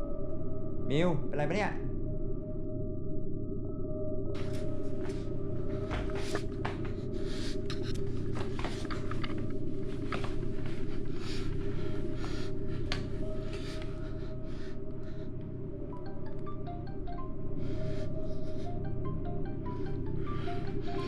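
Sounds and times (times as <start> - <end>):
low drone: 1.9 - 21.0
rustling and scraping of objects: 4.4 - 14.2.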